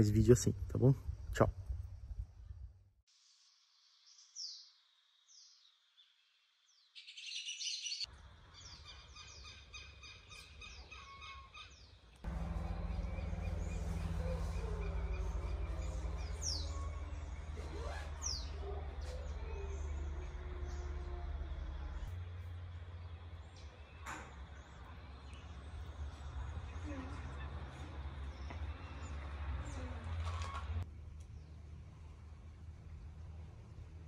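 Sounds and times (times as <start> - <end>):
steady low rumble: 12.2 - 26.8
birds whistling and chirping: 12.9 - 20.9.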